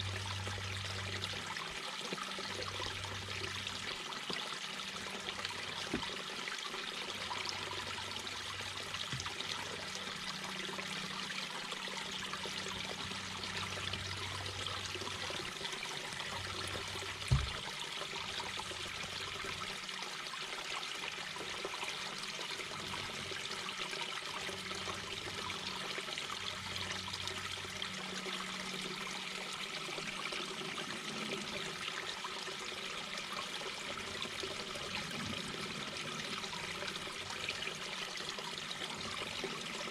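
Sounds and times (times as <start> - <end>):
brook babbling over stones: 0.0 - 39.9
brief low thump: 17.3 - 17.6.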